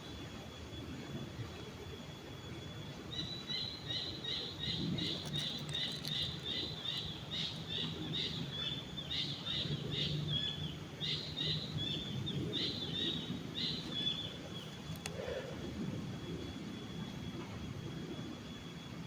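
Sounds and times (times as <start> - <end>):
bird chirping: 3.2 - 14.8.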